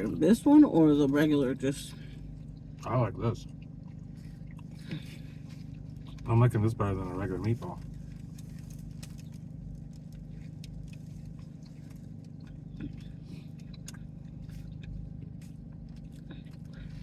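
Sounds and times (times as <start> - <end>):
low hum inside car: 0.0 - 17.0
person chewing: 1.9 - 6.3, 7.8 - 17.0.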